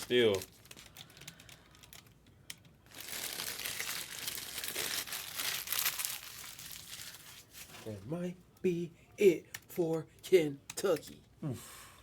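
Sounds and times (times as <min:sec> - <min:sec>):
card pack wrappers crinkling: 0:00.0 - 0:02.2, 0:02.8 - 0:07.9.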